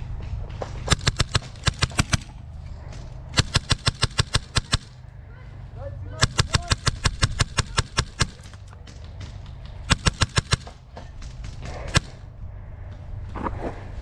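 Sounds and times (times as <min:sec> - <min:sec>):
airsoft guns firing: 0:00.2 - 0:05.0, 0:06.2 - 0:12.3.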